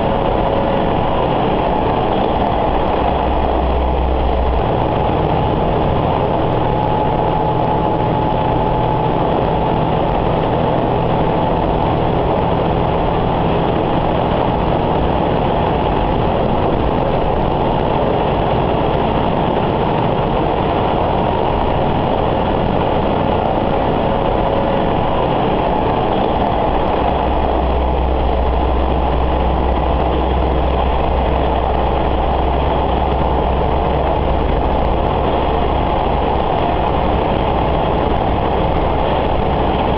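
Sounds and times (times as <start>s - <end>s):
diesel engine drone: 0.0s - 39.9s
wheel and rail rumble: 0.0s - 39.9s.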